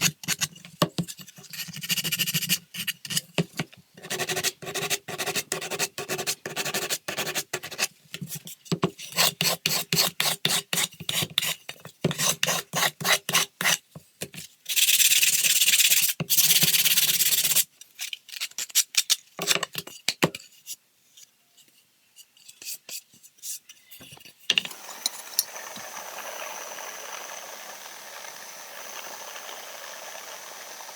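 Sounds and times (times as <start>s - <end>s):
file scraping wood: 8.9s - 13.8s.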